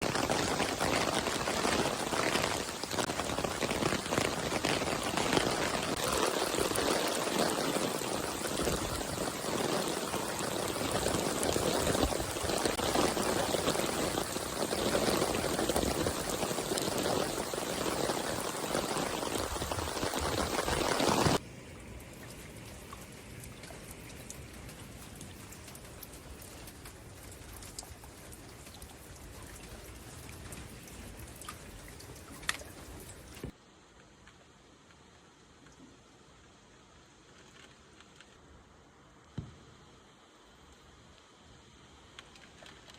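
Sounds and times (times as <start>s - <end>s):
heavy rain splashing: 0.0s - 21.4s.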